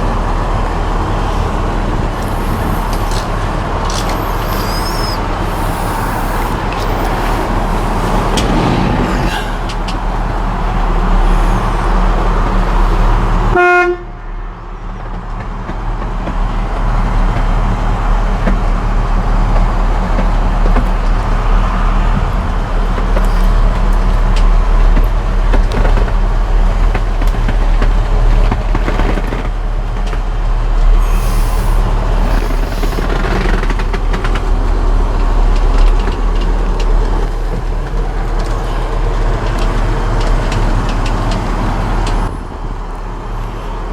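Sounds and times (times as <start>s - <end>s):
truck engine droning: 0.0s - 43.9s
horn toot: 2.2s - 14.2s.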